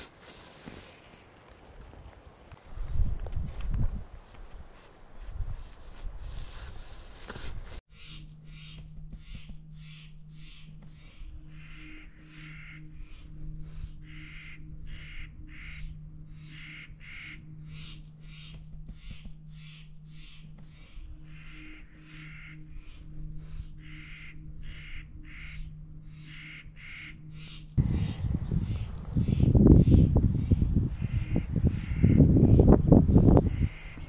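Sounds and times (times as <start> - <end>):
bird harsh crow-like calls: 7.9 - 13.3, 13.9 - 23.0, 23.6 - 34.0.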